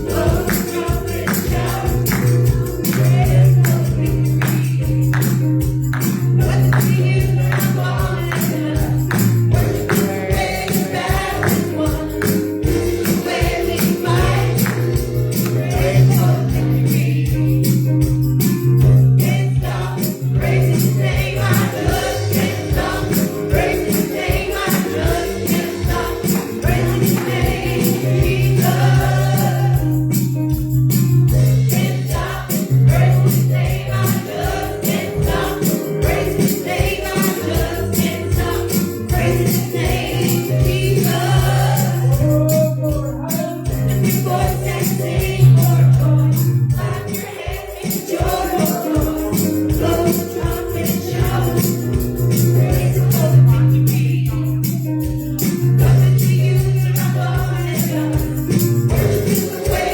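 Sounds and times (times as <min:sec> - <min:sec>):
gospel singing over beat: 0:00.0 - 0:59.9
tambourine shaking: 0:00.0 - 0:59.9.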